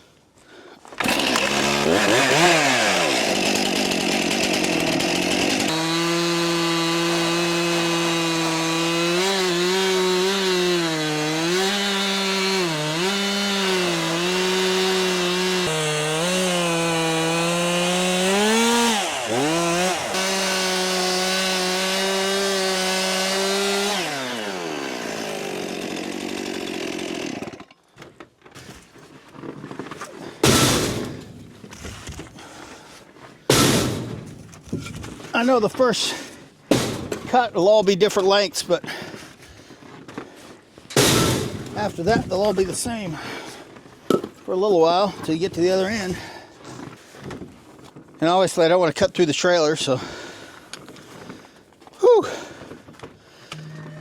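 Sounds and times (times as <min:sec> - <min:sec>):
chainsaw cutting wood: 0:01.0 - 0:27.9, 0:29.4 - 0:35.5, 0:36.7 - 0:37.4, 0:40.2 - 0:44.4.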